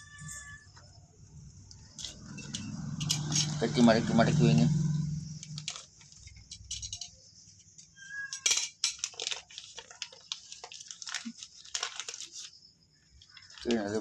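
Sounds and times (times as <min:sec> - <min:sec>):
light clicks and clinks: 0:05.4 - 0:07.3
rustling and crinkling: 0:05.4 - 0:14.0.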